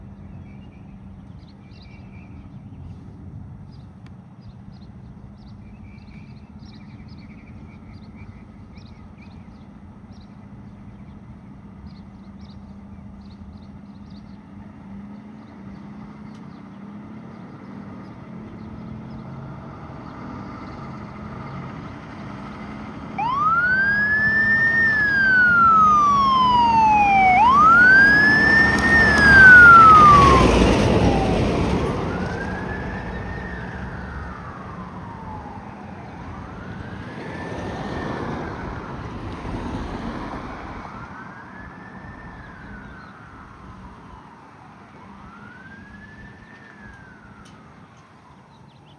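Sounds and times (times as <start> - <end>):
siren wailing: 23.1 - 47.8.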